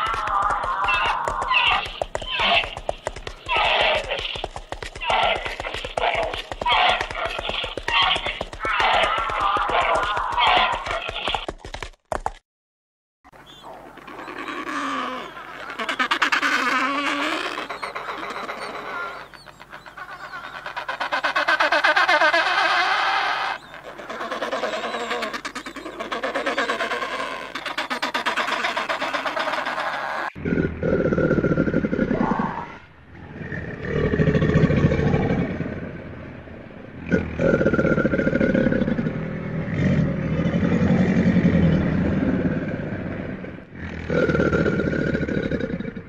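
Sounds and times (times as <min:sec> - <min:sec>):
penguins braying: 0:00.0 - 0:11.4, 0:13.7 - 0:30.4
crocodile growling: 0:29.3 - 0:46.0.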